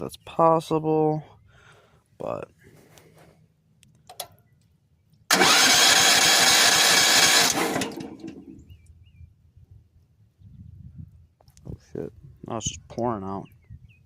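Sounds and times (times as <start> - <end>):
engine electric starter cranking: 5.3 - 8.5.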